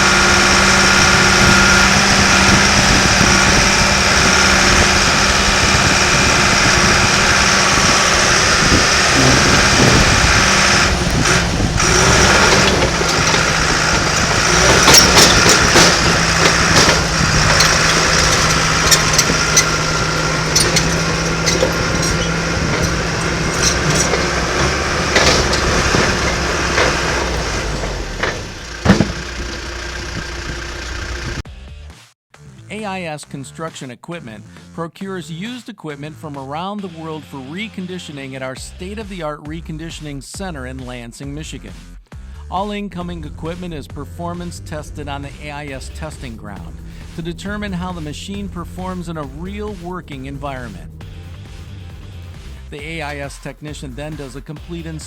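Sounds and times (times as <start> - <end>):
diesel engine running: 0.0 - 31.4, 42.7 - 55.0
metallic clanks and rattles: 0.0 - 31.4.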